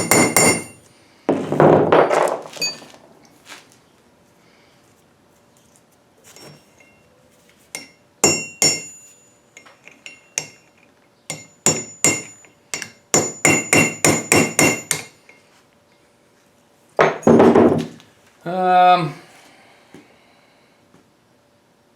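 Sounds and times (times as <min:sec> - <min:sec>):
hammer striking steel tool: 0:00.0 - 0:00.8, 0:07.8 - 0:09.0, 0:11.3 - 0:15.2.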